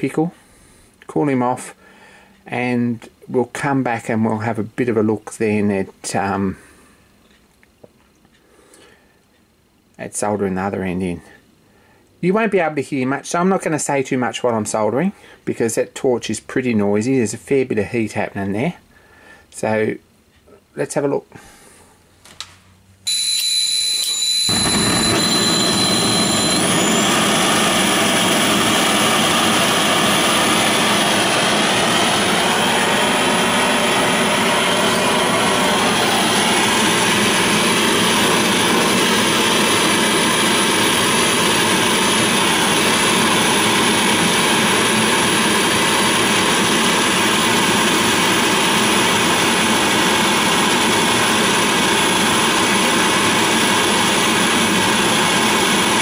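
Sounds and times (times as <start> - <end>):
faint high whistle: 23.1 - 28.0
gas torch rushing: 24.5 - 56.0.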